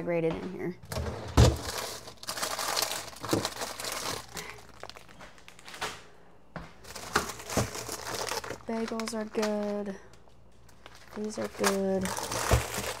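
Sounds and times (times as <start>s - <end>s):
plastic packaging crinkling: 0.9s - 5.8s, 6.8s - 13.0s.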